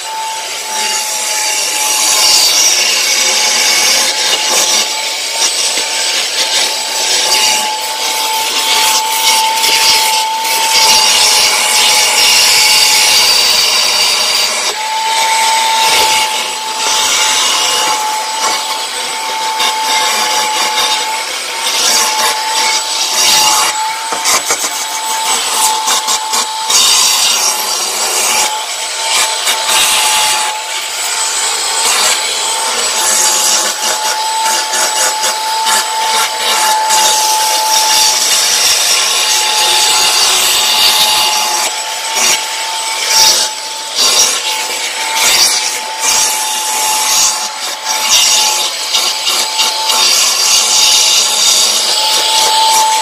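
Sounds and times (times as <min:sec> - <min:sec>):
backpack vacuum whine: 0:00.0 - 0:02.0, 0:13.8 - 0:45.2
vacuum tool scrubbing carpet: 0:00.0 - 0:53.0.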